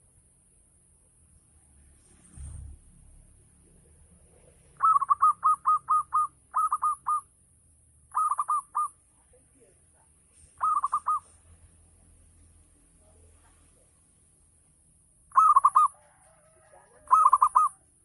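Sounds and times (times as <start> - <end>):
dove cooing in quick notes: 10.6 - 11.2, 15.3 - 16.0, 16.9 - 17.8.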